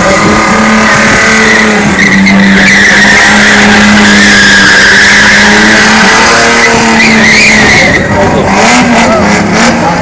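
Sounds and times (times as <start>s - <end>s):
tyre squealing on pavement: 0.0s - 9.2s
motorcycle engine at high revs: 0.0s - 10.0s.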